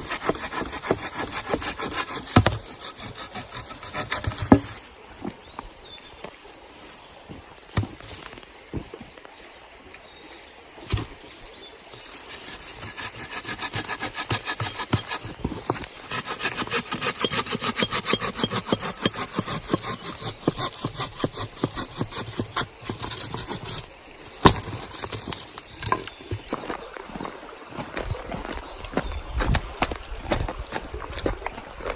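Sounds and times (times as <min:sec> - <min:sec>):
saw cutting through wood: 0:00.0 - 0:04.9, 0:12.1 - 0:26.1.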